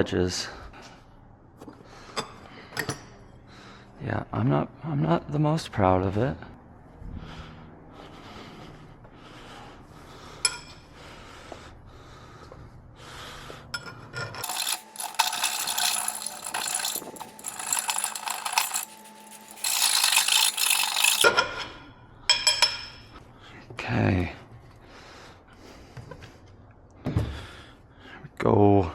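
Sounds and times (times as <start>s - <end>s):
scraping on metal: 13.8s - 21.7s.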